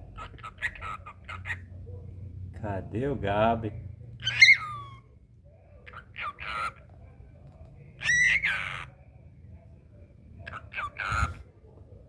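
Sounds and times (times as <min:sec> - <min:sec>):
cockatiel squawky chirps: 0:00.2 - 0:01.6, 0:04.2 - 0:05.0, 0:05.9 - 0:06.8, 0:08.0 - 0:08.9, 0:10.5 - 0:11.4.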